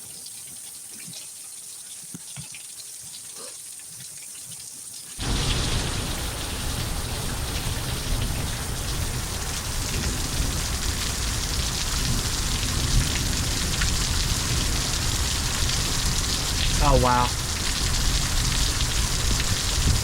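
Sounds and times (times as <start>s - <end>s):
faint watery sound: 0.0s - 20.0s
heavy rain pouring: 5.2s - 20.0s.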